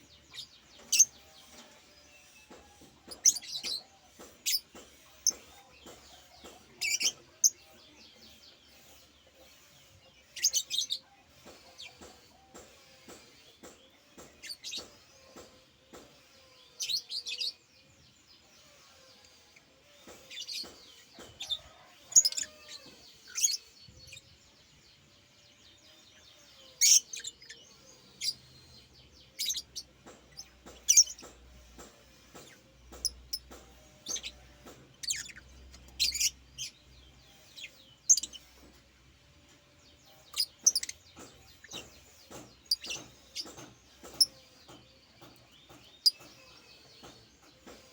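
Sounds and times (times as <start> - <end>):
bird chirping: 0.0 - 47.9.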